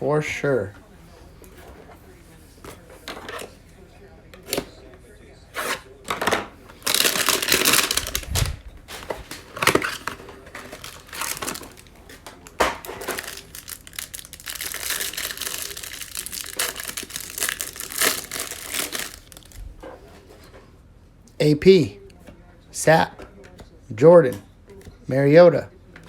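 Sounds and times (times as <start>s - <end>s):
cardboard and plastic wrap crinkling: 6.7s - 20.1s.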